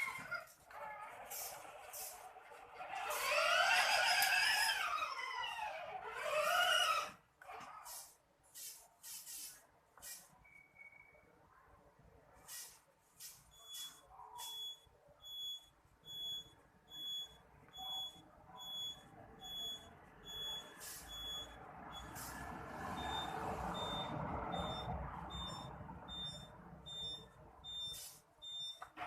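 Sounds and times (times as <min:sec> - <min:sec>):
reversing beeper: 0:23.0 - 0:28.9.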